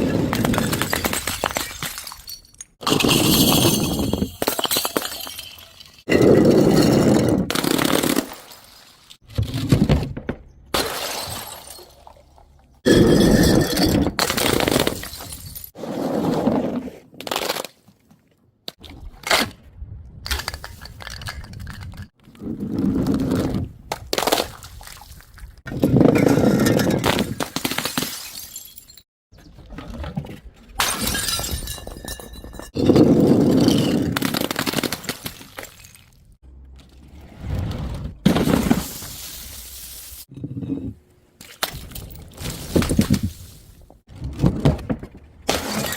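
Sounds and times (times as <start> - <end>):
glass bottles shattering: 0.3 - 8.6, 10.8 - 12.1, 12.9 - 15.8, 26.2 - 29.0, 30.8 - 36.1.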